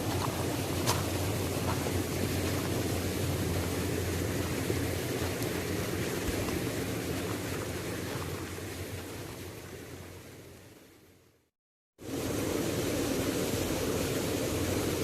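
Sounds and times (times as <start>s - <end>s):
waterfall rushing: 0.0s - 9.2s.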